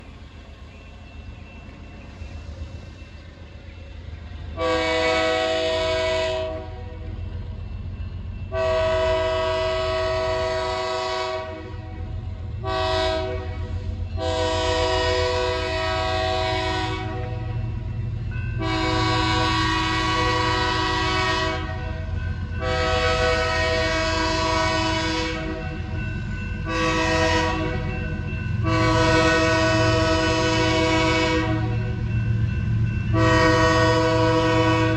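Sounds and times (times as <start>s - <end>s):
diesel engines and train rumbling: 0.0s - 34.9s
locomotive air horn: 4.6s - 6.9s, 8.5s - 11.8s, 12.6s - 17.4s, 18.6s - 22.0s, 22.6s - 25.7s, 26.7s - 27.9s, 28.6s - 31.8s, 33.1s - 34.9s.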